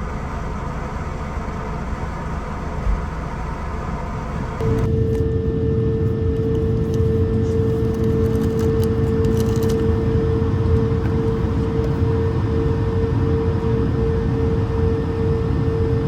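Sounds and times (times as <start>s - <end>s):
airplane cabin droning hum: 0.0s - 16.0s.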